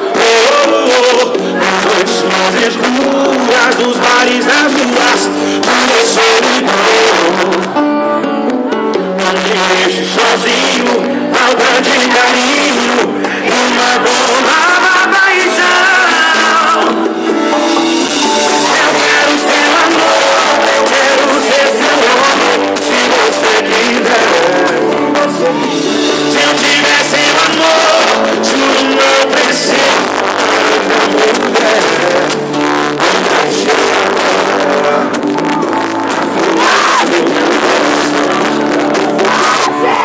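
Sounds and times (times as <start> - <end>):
live band with singing: 0.0 - 40.0.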